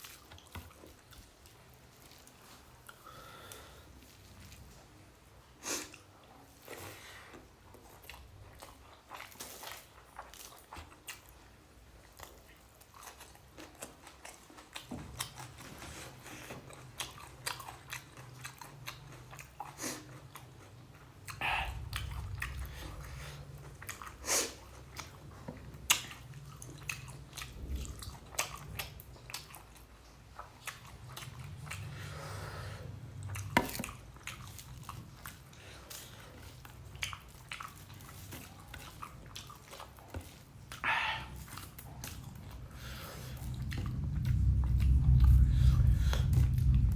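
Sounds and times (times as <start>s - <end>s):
person chewing food: 0.0s - 5.1s, 5.8s - 46.9s
low hum: 21.4s - 24.2s, 31.0s - 35.4s, 40.9s - 46.9s.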